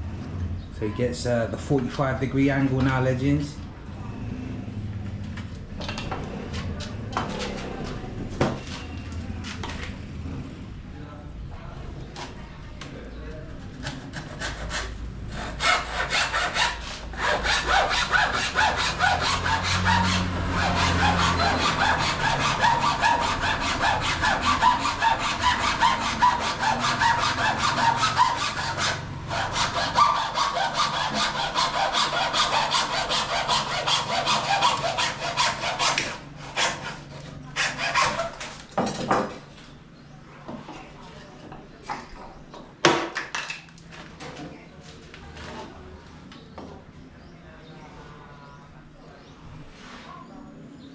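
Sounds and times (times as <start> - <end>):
hand saw cutting wood: 13.8 - 38.6.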